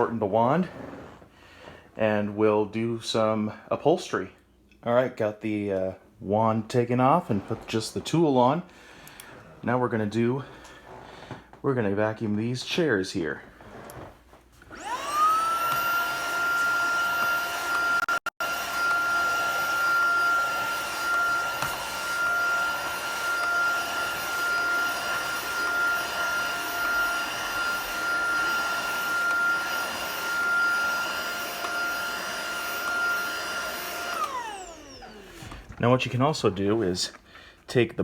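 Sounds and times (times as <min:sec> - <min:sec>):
vacuum motor whining: 0:13.7 - 0:36.8.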